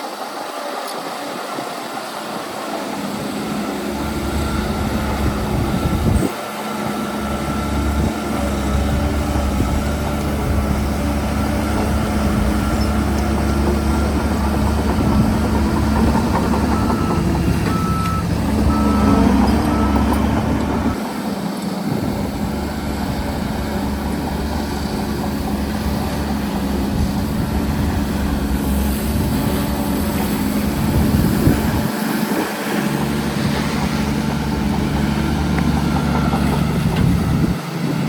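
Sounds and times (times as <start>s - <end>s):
heavy diesel engine running: 0.0s - 38.0s
reversing alarm beeping: 3.8s - 10.1s, 11.1s - 21.0s, 34.4s - 37.6s.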